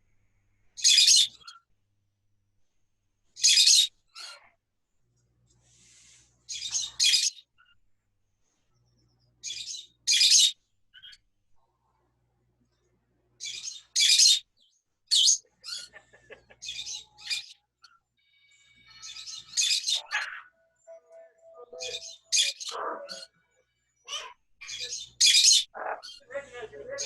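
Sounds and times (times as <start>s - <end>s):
parrots squawking: 0.8s - 1.6s, 3.4s - 4.5s, 6.5s - 7.4s, 9.5s - 11.2s, 13.4s - 14.4s, 15.1s - 17.6s, 19.0s - 20.6s, 21.6s - 23.3s, 24.1s - 27.0s.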